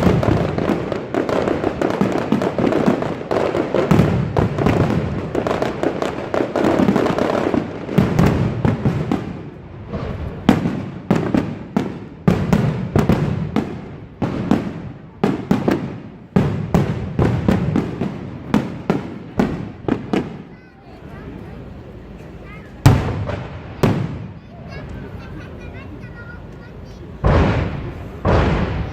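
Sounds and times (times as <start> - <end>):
fireworks bangs and crackles: 0.0 - 28.9.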